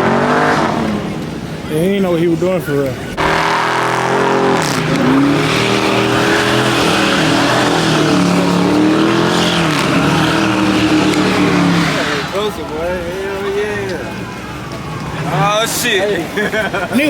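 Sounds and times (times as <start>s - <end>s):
car engine revving high: 0.0s - 1.7s, 3.1s - 13.1s
tyres screeching: 0.0s - 17.0s.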